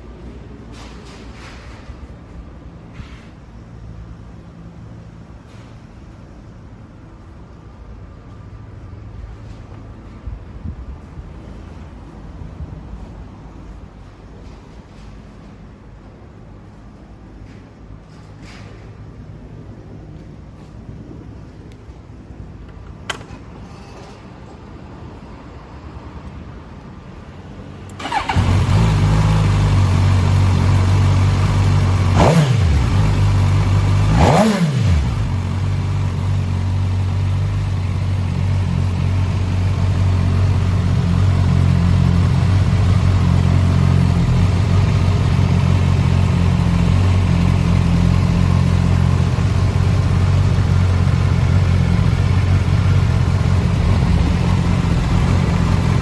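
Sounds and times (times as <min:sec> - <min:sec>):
motorcycle engine revving and idling: 0:28.0 - 0:56.0.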